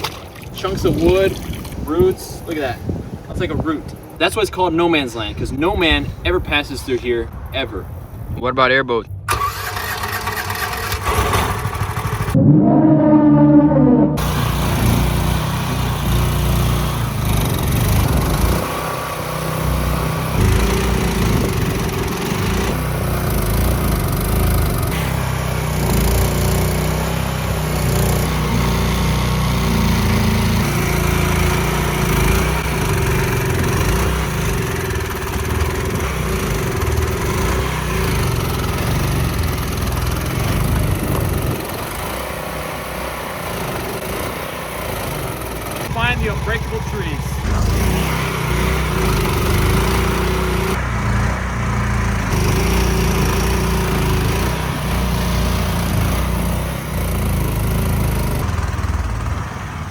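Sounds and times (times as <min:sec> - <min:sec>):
boat motor running under load: 0:09.3 - 0:59.9.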